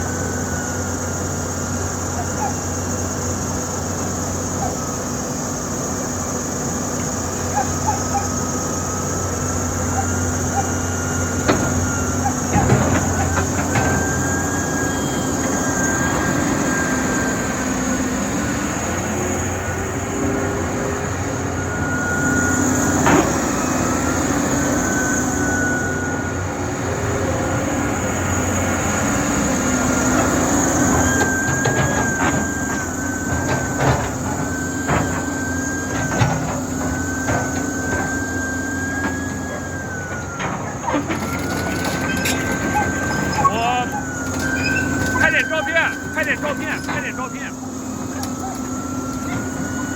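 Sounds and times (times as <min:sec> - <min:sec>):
excavator engine running: 0:00.0 - 0:49.9
thin high whine: 0:34.7 - 0:49.9
machine clanking: 0:39.0 - 0:49.9.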